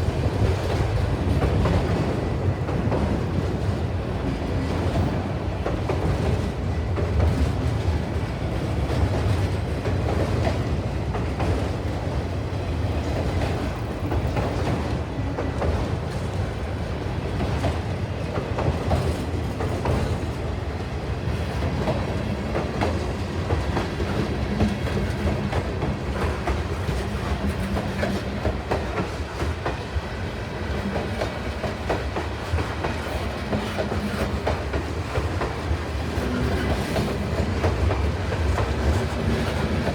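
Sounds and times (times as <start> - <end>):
train wheels clacking: 13.0 - 39.9.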